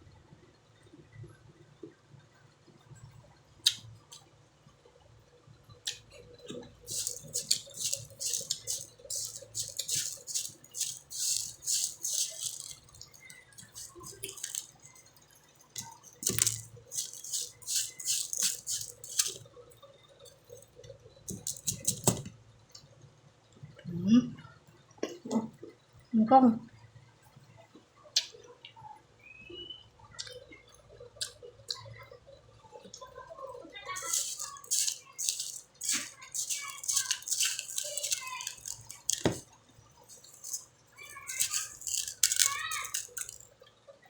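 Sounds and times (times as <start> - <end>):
person chewing crunchy food: 5.8 - 19.5, 20.2 - 22.3, 33.9 - 43.5.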